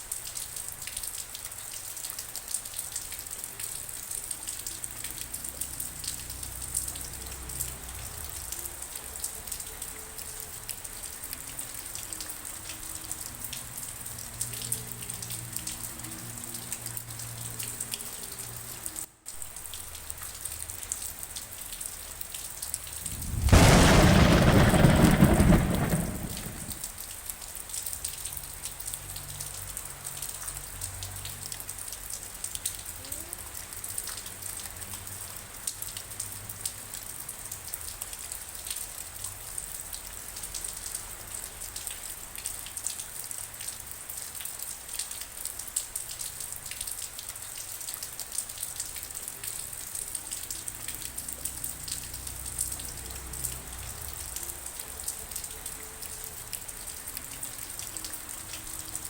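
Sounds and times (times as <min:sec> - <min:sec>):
rain falling and dripping: 0:00.0 - 0:59.0
thunder rumble: 0:22.8 - 0:26.9.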